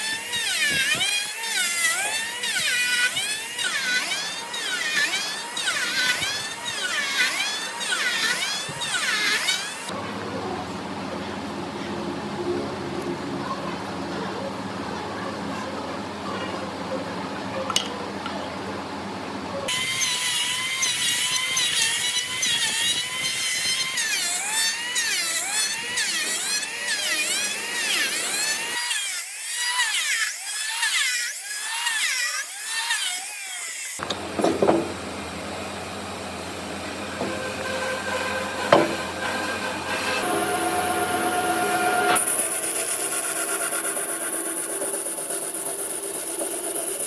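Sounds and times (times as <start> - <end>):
power tool whining on wood: 0.0 - 9.9, 19.7 - 47.0
knocks: 34.0 - 35.0, 37.2 - 39.4.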